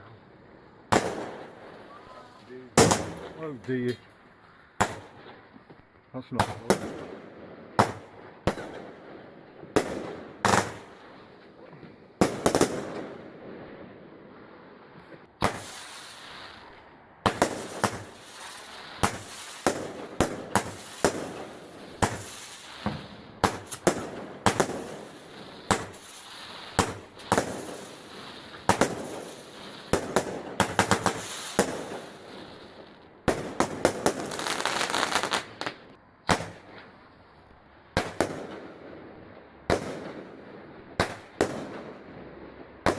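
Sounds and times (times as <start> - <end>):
fireworks bangs and crackling: 0.0 - 42.9
fireworks hissing: 15.5 - 32.8, 33.5 - 35.8.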